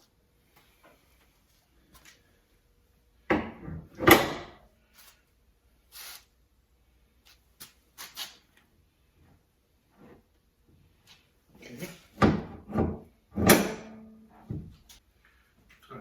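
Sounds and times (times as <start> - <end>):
car body parts clunking: 3.3 - 4.6, 12.1 - 14.9.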